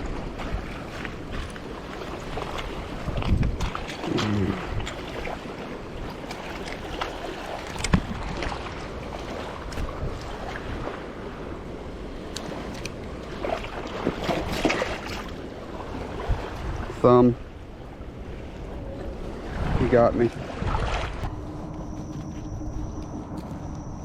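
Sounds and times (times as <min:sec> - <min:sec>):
wind on microphone: 0:00.0 - 0:06.2, 0:07.6 - 0:12.7, 0:13.3 - 0:24.0
waves washing against rocks: 0:00.0 - 0:17.4.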